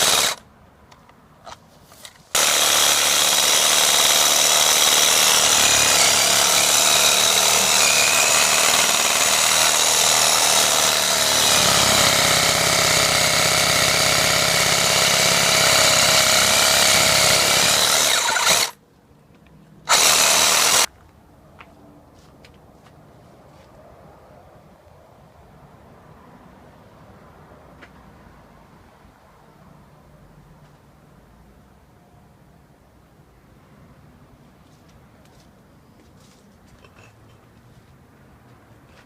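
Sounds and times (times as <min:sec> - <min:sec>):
reciprocating saw cutting branch: 0:00.0 - 0:00.4, 0:02.3 - 0:18.8, 0:19.9 - 0:20.9.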